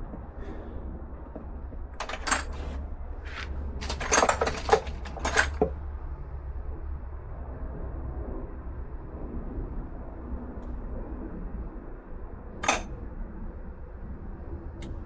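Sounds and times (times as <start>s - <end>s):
steady low hum: 0.0s - 15.0s
metal tools clinking: 2.0s - 5.8s.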